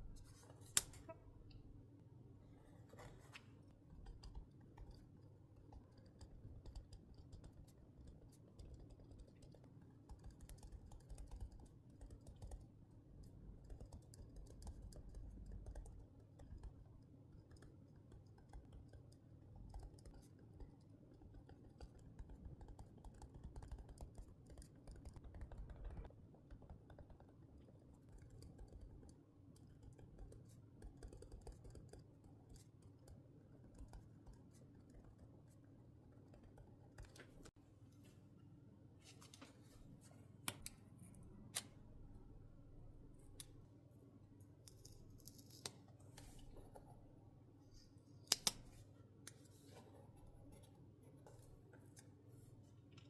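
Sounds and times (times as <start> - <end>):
small clicks and scratches on paper: 2.6 - 37.6, 44.6 - 46.9.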